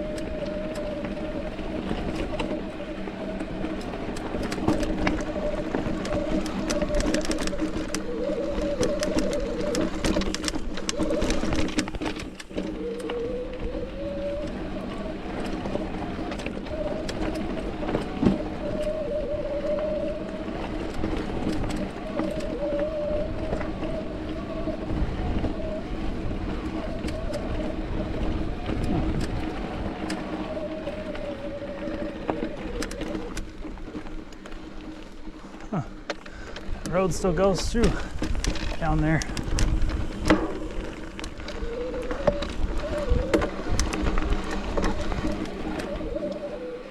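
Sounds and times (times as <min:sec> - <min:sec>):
bike clicks and rattles: 0:00.0 - 0:46.9
bike pitched hum: 0:00.0 - 0:46.9
wind noise: 0:00.0 - 0:46.9.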